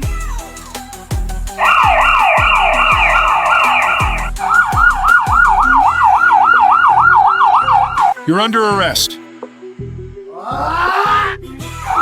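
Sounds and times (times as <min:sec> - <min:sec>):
police car siren yelping: 0:01.6 - 0:08.2.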